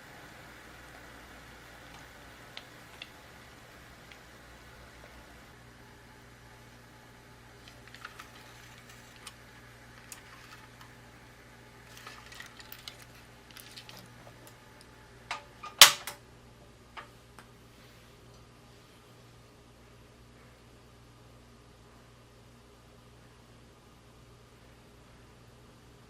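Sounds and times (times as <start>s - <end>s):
kitchen handling clicks and taps: 15.3s - 16.2s.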